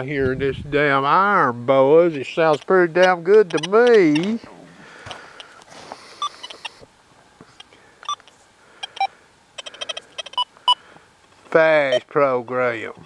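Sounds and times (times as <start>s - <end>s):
metal detector beeps: 2.5s - 4.4s, 6.1s - 6.8s, 8.0s - 10.8s, 11.8s - 12.1s.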